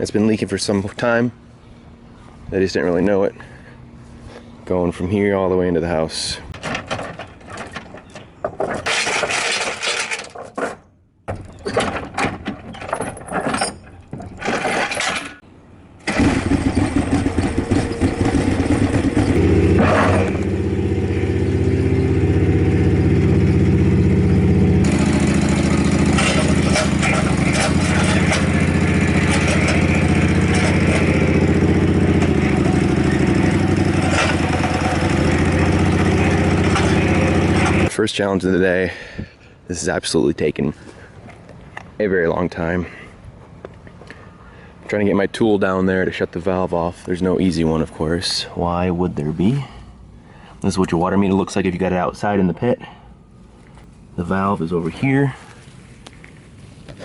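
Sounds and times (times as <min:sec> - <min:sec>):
engine starting and running: 0:06.5 - 0:10.7, 0:11.7 - 0:38.0
clattering and scraping: 0:06.5 - 0:15.4, 0:16.1 - 0:20.8, 0:24.8 - 0:37.9.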